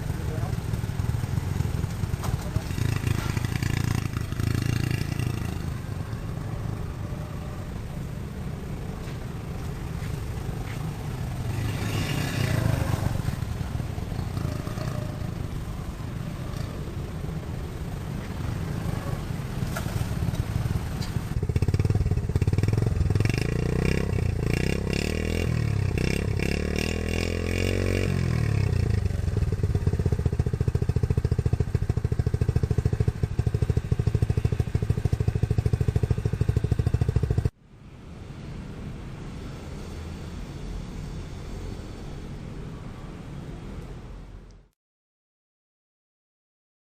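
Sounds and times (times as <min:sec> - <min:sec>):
motorcycle engine revving: 0:00.0 - 0:07.8, 0:08.7 - 0:37.6.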